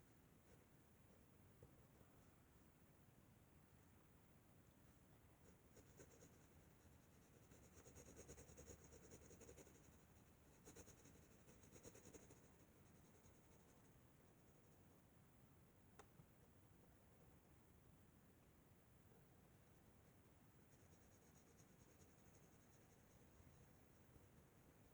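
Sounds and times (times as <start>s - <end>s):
pencil scratching on paper: 5.7s - 10.0s, 10.6s - 13.5s.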